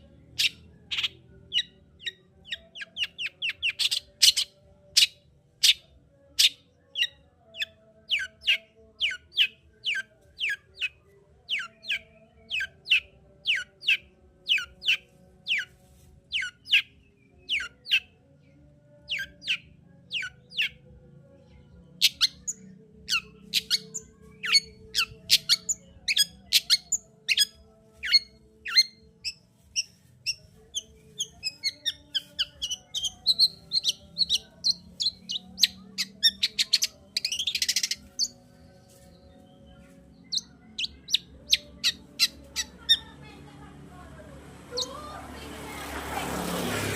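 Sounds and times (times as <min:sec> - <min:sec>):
shrike chattering song: 0:00.3 - 0:05.8, 0:06.4 - 0:16.9, 0:22.0 - 0:39.0, 0:39.8 - 0:43.2.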